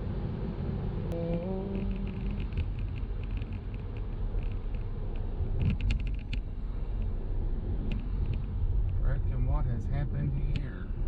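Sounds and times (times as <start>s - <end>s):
car engine and road noise: 0.0s - 11.0s
faint clicks: 1.1s - 7.1s, 7.8s - 9.0s.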